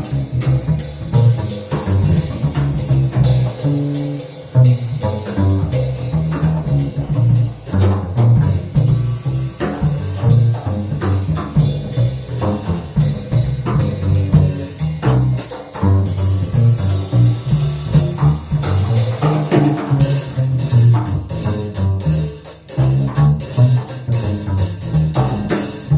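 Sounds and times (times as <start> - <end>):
drum kit with cymbals: 0.0 - 25.9
plucked double bass: 0.0 - 25.9.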